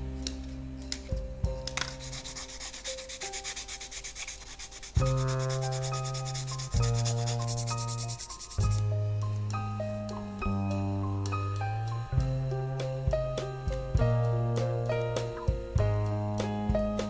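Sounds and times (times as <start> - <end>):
sandpaper rubbing plastic: 1.8 - 8.8.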